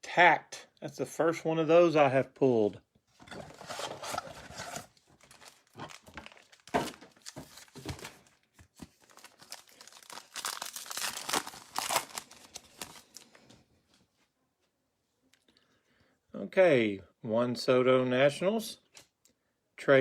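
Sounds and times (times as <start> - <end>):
wrapper tearing and crinkling: 3.5 - 13.4.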